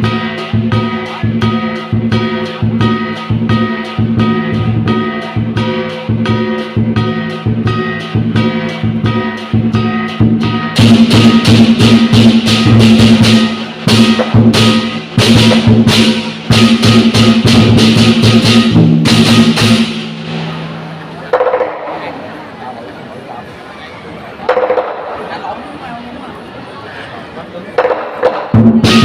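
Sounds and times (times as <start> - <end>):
loud cymbal crashes: 0.0 - 21.0
steady drum beat: 0.0 - 22.2, 27.8 - 29.0.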